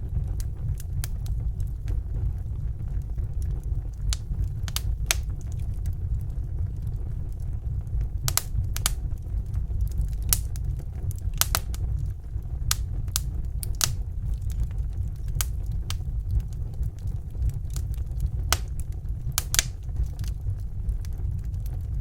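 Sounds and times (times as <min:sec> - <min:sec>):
low fire rumble: 0:00.0 - 0:22.0
wood fire crackling: 0:00.0 - 0:22.0
sharp pops and snaps: 0:04.0 - 0:06.0, 0:08.2 - 0:09.2, 0:09.8 - 0:12.1, 0:12.7 - 0:20.4.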